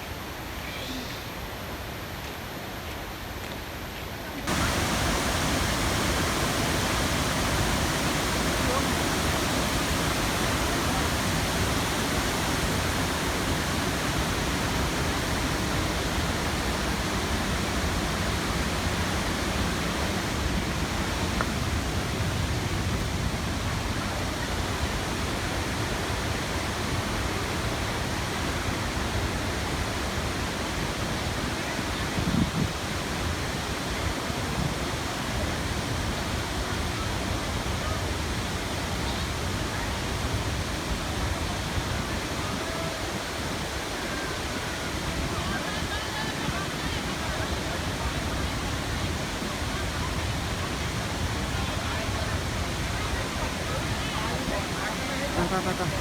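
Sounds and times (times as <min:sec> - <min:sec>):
waterfall pouring: 0:04.5 - 0:23.0.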